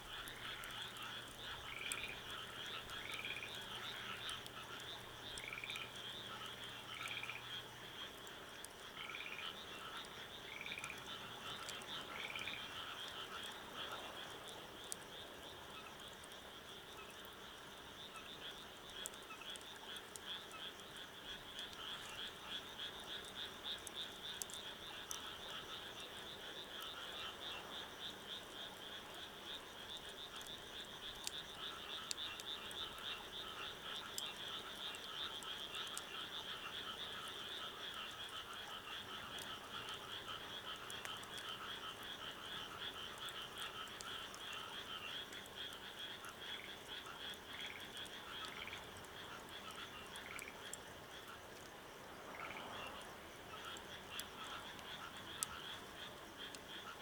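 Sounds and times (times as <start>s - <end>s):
wood fire crackling: 0.0s - 8.9s, 18.3s - 51.9s
frogs calling in trills: 0.0s - 57.0s.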